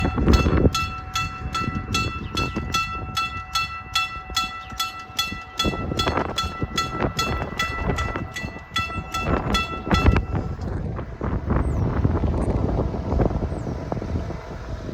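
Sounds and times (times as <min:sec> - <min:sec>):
railroad crossing bell ringing: 0:00.0 - 0:10.6
locomotive rumble: 0:00.0 - 0:14.9.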